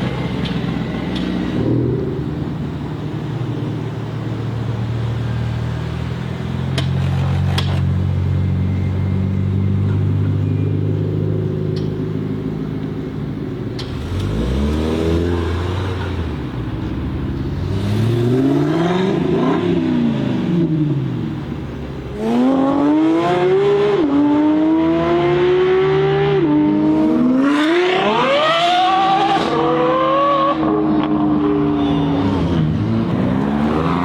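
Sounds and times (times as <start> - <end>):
car engine revving: 13.2 - 34.0.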